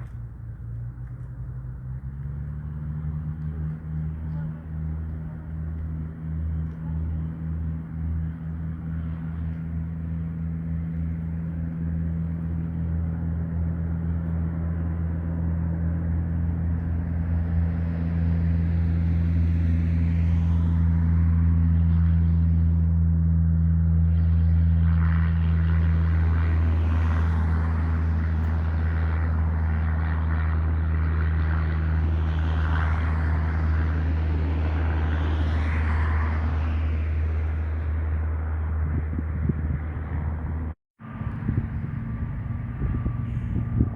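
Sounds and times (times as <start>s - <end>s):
light aircraft engine drone: 0.0s - 43.9s.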